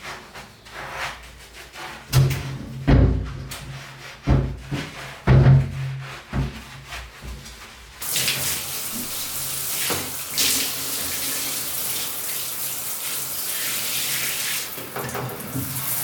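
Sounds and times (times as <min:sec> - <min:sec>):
water running: 0:08.0 - 0:16.0.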